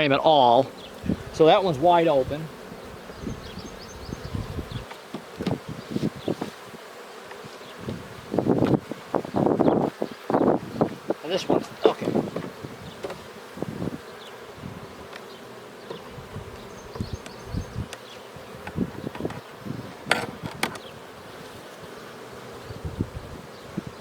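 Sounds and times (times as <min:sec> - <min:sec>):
honeybees buzzing: 0:00.0 - 0:24.0
hive frames knocking and clicking: 0:02.9 - 0:13.8, 0:15.0 - 0:21.6.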